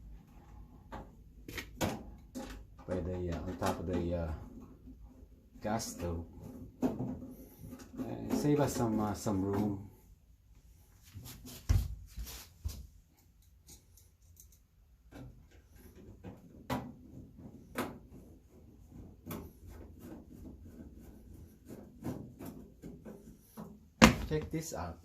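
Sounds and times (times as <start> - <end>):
heavy thump: 24.0 - 24.5.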